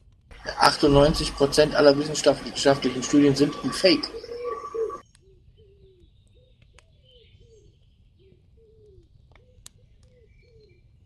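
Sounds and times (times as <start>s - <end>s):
short low rising-falling calls: 0.4s - 5.0s.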